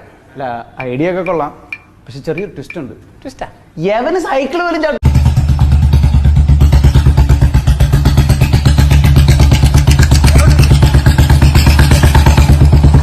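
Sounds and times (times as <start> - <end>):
motorcycle exhaust thumping at idle: 5.0 - 13.0.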